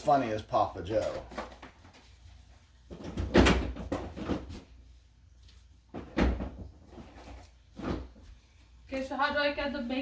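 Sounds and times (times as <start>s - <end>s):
kitchen knocks and thuds: 2.9s - 4.7s, 5.9s - 7.2s.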